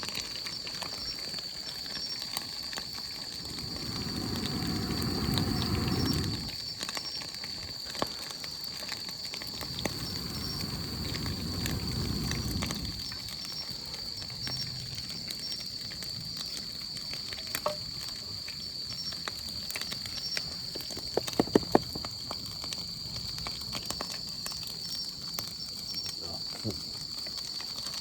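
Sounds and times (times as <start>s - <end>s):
oil sizzling: 0.7s - 13.6s.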